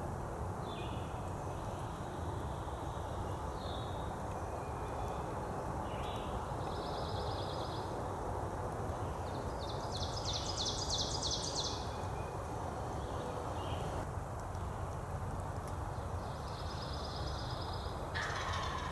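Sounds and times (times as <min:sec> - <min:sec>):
songbirds singing: 0:09.0 - 0:14.0.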